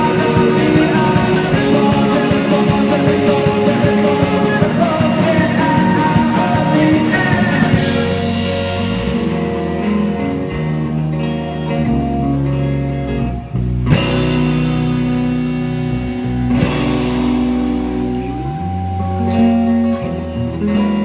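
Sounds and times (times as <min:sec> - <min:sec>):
instrumental rock band: 0:00.0 - 0:21.0.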